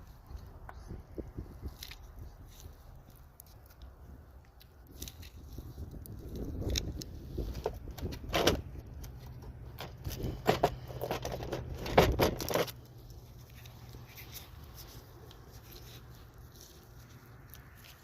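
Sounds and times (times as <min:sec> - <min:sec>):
low steady hum: 0:00.0 - 0:18.0
tools clicking and scraping: 0:04.6 - 0:18.0.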